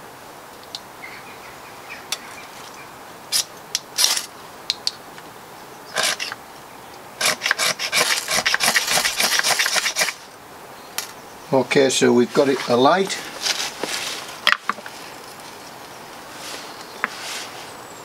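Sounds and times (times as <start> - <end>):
hard rasping scrapes: 6.0 - 6.4, 7.2 - 10.2.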